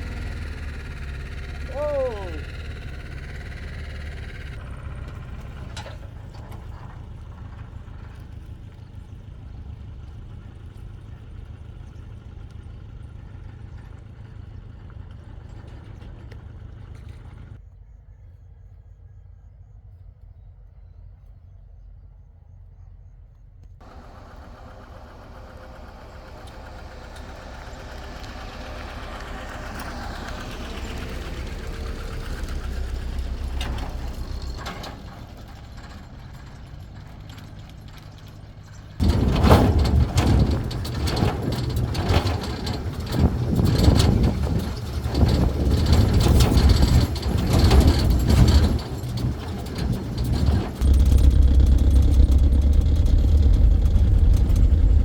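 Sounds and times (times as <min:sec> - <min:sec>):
close engine: 0:00.0 - 0:17.6, 0:23.8 - 0:55.0
vehicle engine running: 0:00.0 - 0:17.7, 0:23.8 - 0:55.0
clanks and knocks: 0:23.8 - 0:55.0.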